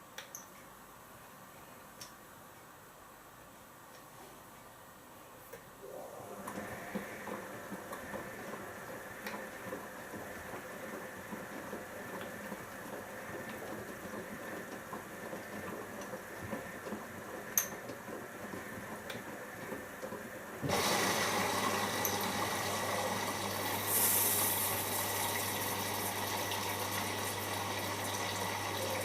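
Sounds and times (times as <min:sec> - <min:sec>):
washing machine drum sloshing: 0:05.9 - 0:29.0.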